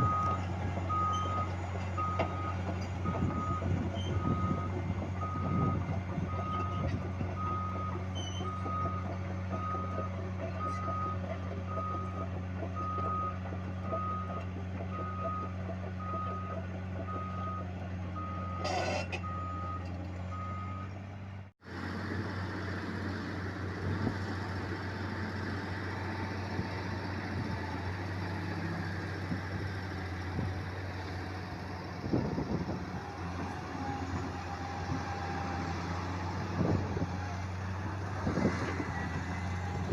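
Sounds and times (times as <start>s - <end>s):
reversing alarm beeping: 0.0s - 20.9s
heavy diesel machine running: 0.0s - 39.9s.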